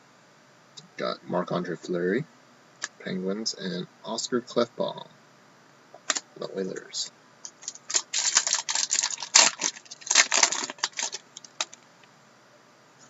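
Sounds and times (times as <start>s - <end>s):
card pack wrapper crinkling: 7.5s - 11.8s
cards being handled: 7.5s - 11.8s.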